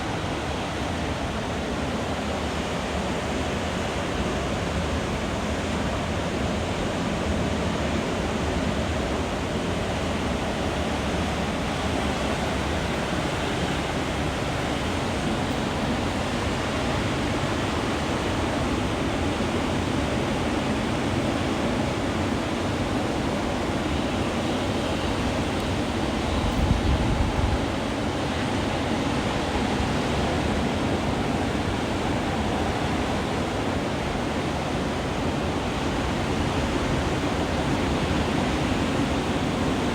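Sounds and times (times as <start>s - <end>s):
waves breaking: 9.9s - 39.9s.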